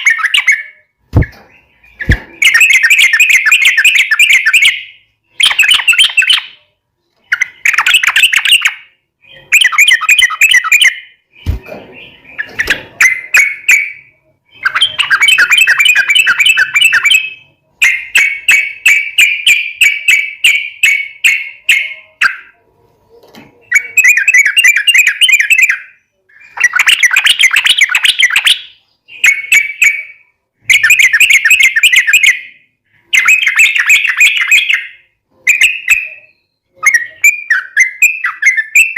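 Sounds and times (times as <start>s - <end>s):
bird singing bubbling phrases: 0.0s - 6.7s, 23.7s - 38.9s.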